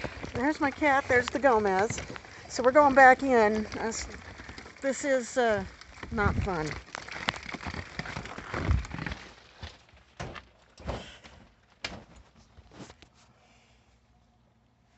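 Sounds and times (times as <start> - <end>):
snow pellets pattering: 0.0 - 8.8
footsteps: 0.0 - 13.2.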